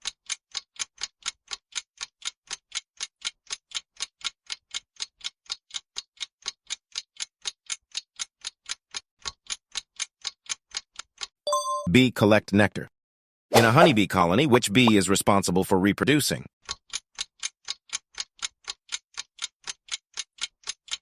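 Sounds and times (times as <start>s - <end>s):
countdown timer ticking: 11.5s - 12.2s, 13.6s - 15.4s.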